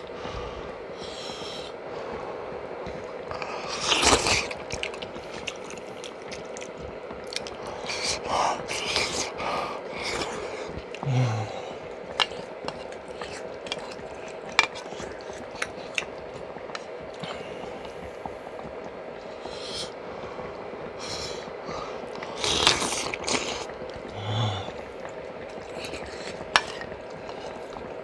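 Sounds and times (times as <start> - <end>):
low hum: 0.0 - 28.0
chewing: 2.8 - 28.0
soup bubbling in a pot: 10.2 - 28.0.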